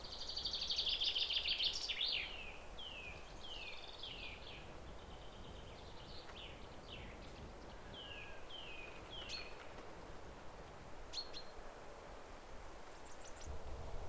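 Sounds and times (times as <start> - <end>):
low outdoor background noise: 0.0 - 14.0.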